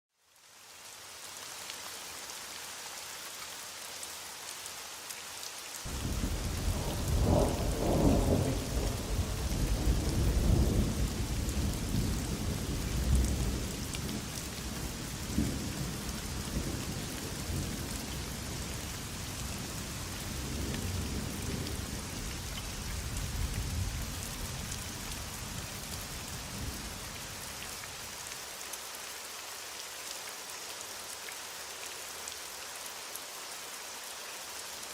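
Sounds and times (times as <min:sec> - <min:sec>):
heavy rain falling: 0:00.3 - 0:34.9
thunder rumbling: 0:05.9 - 0:13.7.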